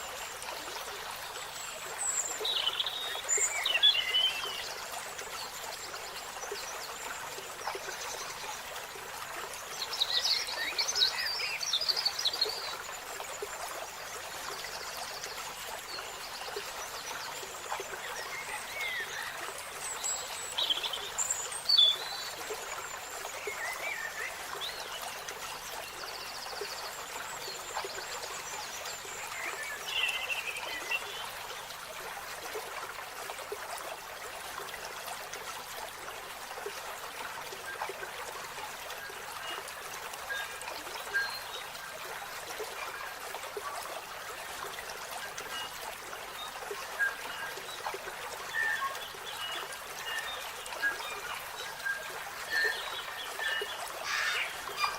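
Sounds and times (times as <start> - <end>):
birds chirping and trilling: 48.6 - 54.9.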